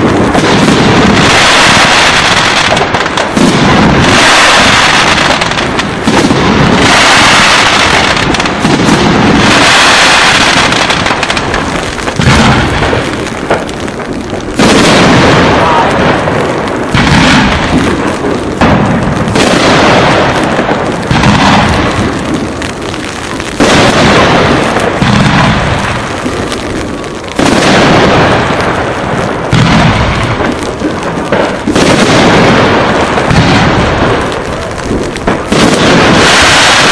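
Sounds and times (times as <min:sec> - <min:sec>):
firework crackle: 0:00.0 - 0:36.9
firework shells booming: 0:00.0 - 0:36.9.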